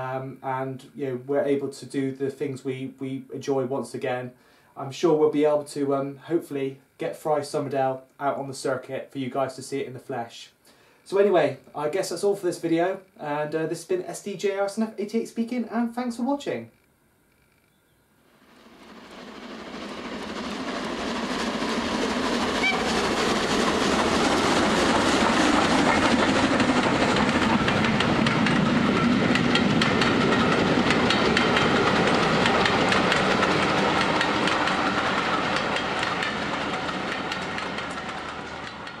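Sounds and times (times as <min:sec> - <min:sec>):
train rumbling on rails: 0:18.4 - 0:39.0
wheel clicks over rail joints: 0:25.3 - 0:39.0.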